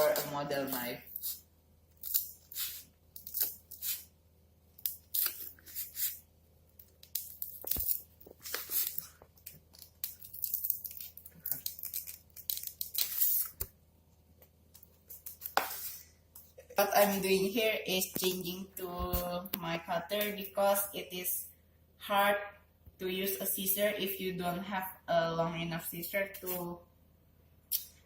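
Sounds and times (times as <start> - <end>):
scissors cutting packing foam: 4.8 - 6.2.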